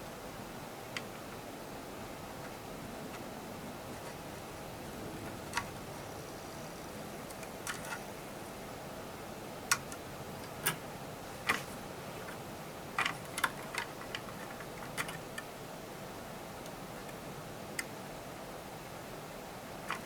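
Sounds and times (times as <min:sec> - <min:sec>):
steady low hiss: 0:00.0 - 0:20.0
small tools clicking and tapping: 0:13.0 - 0:15.5.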